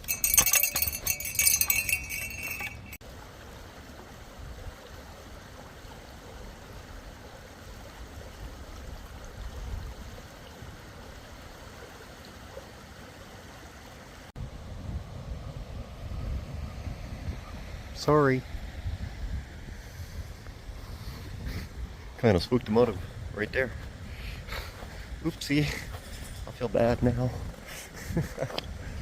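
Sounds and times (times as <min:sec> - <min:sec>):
small metal pieces clinking: 0:00.0 - 0:03.0
small creek flowing: 0:00.0 - 0:29.0.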